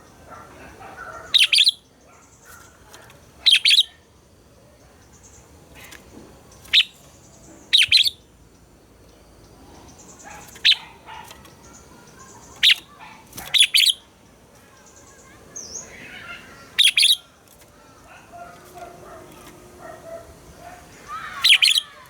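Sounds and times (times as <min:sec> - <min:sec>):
bird singing whistled phrases: 0:07.8 - 0:08.2, 0:13.6 - 0:14.0, 0:16.8 - 0:17.2, 0:21.1 - 0:22.0.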